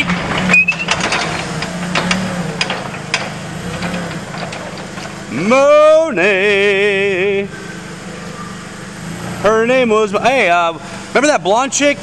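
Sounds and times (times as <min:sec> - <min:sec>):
clicks and knocks: 0:00.0 - 0:05.3
low engine-like hum: 0:00.0 - 0:12.0.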